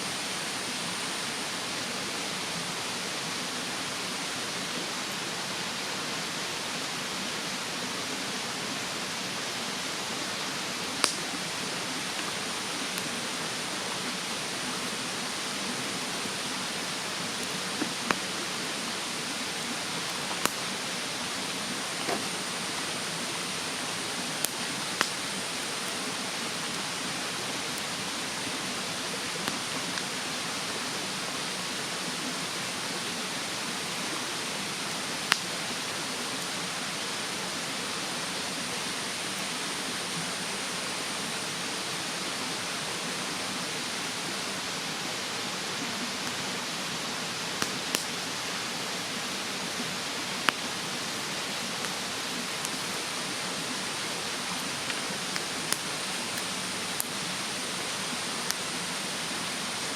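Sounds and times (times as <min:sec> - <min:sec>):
mountain stream rushing: 0:00.0 - 0:59.9
wood fire crackling and popping: 0:10.9 - 0:13.2, 0:17.1 - 0:22.8, 0:24.2 - 0:26.8, 0:34.8 - 0:35.8, 0:47.6 - 0:48.2, 0:54.5 - 0:57.7.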